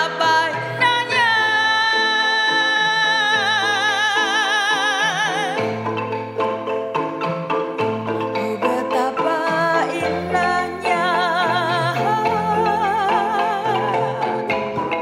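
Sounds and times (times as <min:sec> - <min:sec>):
wooden mallet notes: 0:00.0 - 0:15.0.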